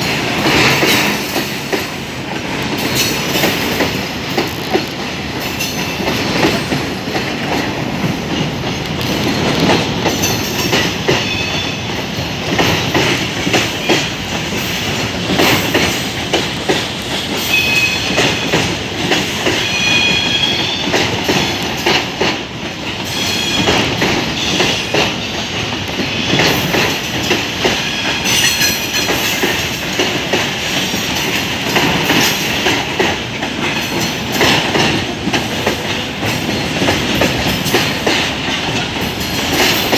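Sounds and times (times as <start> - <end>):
train wheels clattering over rails: 0.0 - 39.9
high-pitched wheel squeals: 17.4 - 18.2, 19.5 - 20.9.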